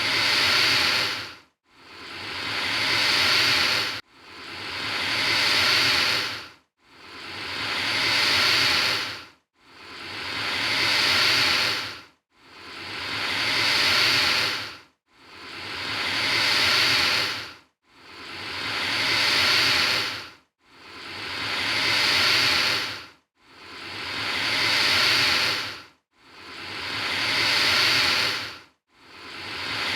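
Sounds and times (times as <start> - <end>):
alligator hissing: 0.0 - 1.3, 1.9 - 4.0, 4.8 - 6.4, 7.5 - 9.2, 9.9 - 12.0, 12.7 - 14.7, 15.4 - 17.4, 18.1 - 20.2, 21.0 - 23.0, 23.7 - 25.8, 26.4 - 28.5, 29.2 - 29.9.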